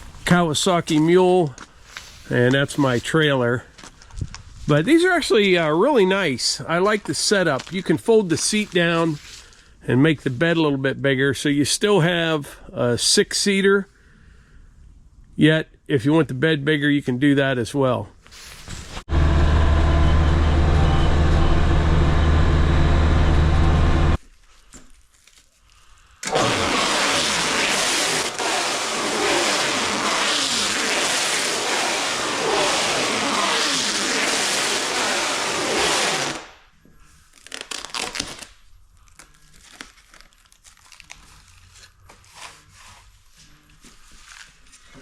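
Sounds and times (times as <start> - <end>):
rough engine and driving noise: 19.1 - 24.2
vehicle engine running: 19.1 - 24.2.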